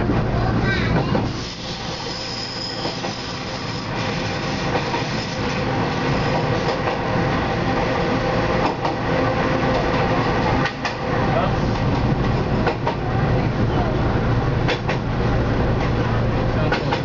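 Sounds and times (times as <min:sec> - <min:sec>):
rumble of wheels on rail: 0:00.0 - 0:17.0
high wheel squeal: 0:01.3 - 0:04.0.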